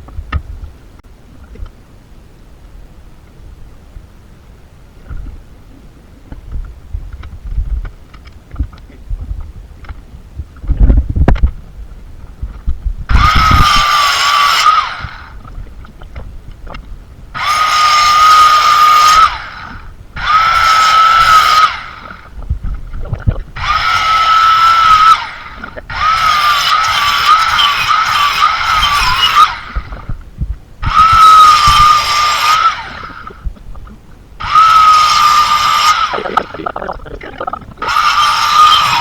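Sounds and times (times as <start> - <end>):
electric power tool whining: 13.1 - 15.4, 17.4 - 22.4, 23.6 - 30.2, 30.8 - 33.4, 34.4 - 36.6, 37.7 - 39.0.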